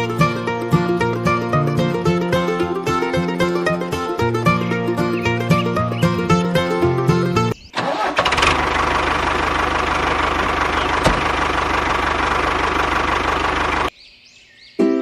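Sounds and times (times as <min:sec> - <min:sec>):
small engine running: 0:07.8 - 0:13.9.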